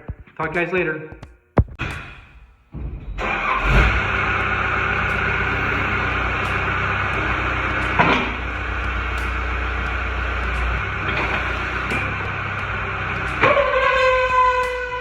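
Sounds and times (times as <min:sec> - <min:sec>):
skid steer engine running: 0:03.1 - 0:15.0.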